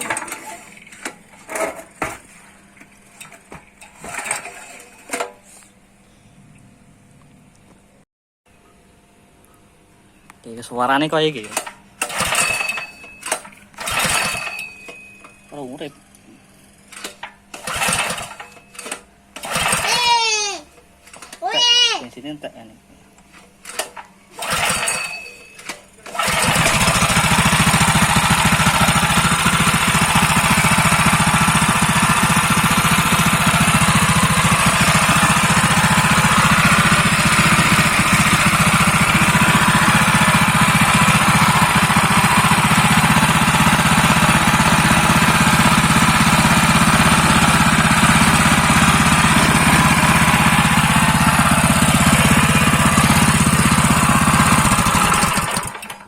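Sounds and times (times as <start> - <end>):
small petrol engine running: 3.2 - 5.3, 11.4 - 14.9, 16.9 - 22.0, 23.6 - 56.0.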